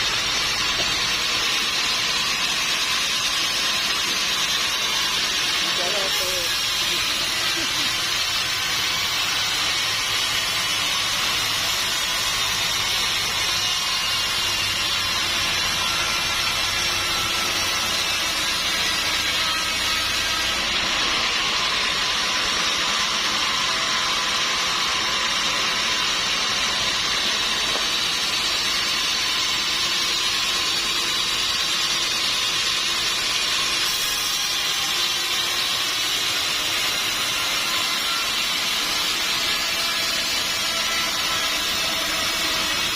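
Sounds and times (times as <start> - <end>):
sawmill saw cutting log: 0.0 - 42.9.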